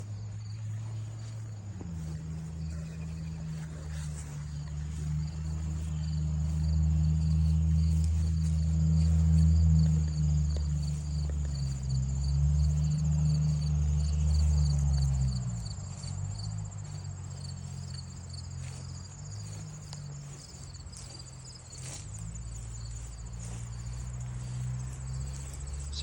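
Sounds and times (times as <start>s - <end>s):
insect chirping rapidly: 0.0s - 26.0s
insects trilling: 0.0s - 26.0s
low droning: 0.0s - 26.0s.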